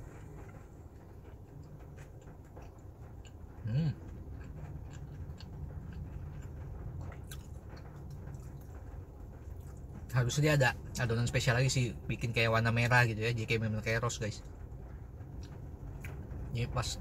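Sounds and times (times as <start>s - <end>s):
low steady hum: 0.0s - 17.0s
person chewing with wet clicks: 1.4s - 8.8s.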